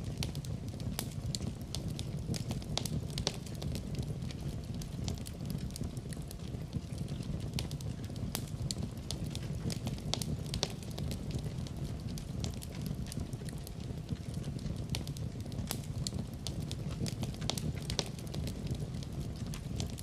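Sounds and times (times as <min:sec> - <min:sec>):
fireplace fire crackling: 0:00.0 - 0:20.0.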